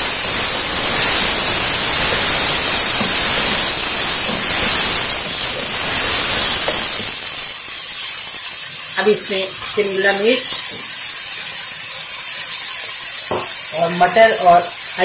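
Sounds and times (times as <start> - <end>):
food sizzling in hot oil: 0.0 - 15.0
wooden spoon stirring: 7.0 - 15.0.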